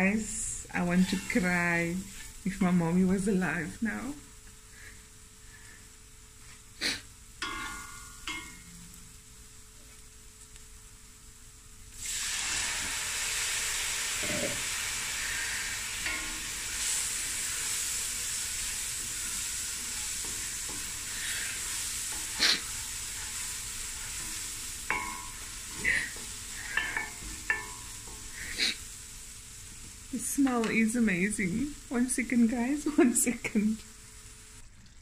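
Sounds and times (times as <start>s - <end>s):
paste sizzling in hot oil: 0.0s - 5.8s, 11.9s - 34.7s
wooden spatula scraping pot: 0.8s - 2.6s.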